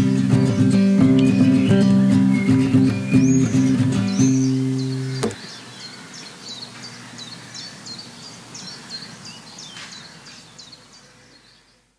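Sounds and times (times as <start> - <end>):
faint outdoor background noise: 0.0 - 11.9
bird chirping high: 0.4 - 11.2.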